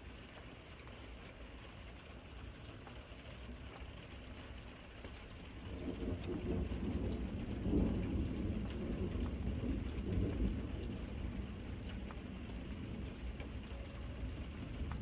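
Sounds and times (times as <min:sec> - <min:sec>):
steady rain: 0:00.0 - 0:15.0
thunder rolling: 0:05.7 - 0:13.3.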